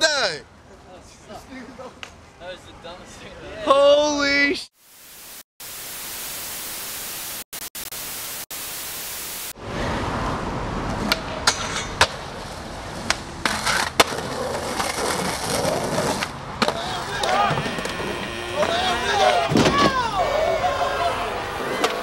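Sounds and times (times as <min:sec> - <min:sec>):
static hiss: 0:04.7 - 0:09.6
skateboard wheels rolling on pavement: 0:09.6 - 0:22.0
skateboard popping and landing: 0:13.0 - 0:20.0.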